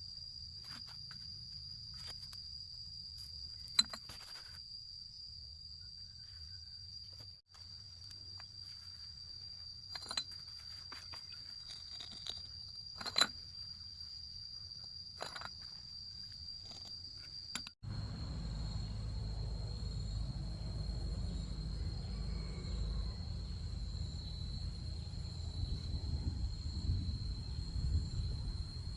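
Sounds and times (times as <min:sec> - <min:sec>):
insects trilling: 0:00.0 - 0:28.9
low rumble: 0:17.8 - 0:28.9.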